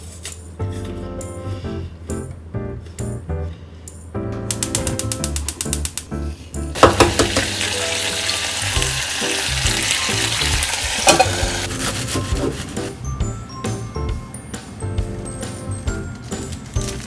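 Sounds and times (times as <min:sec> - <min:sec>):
food sizzling in frying pan: 0:06.8 - 0:12.1.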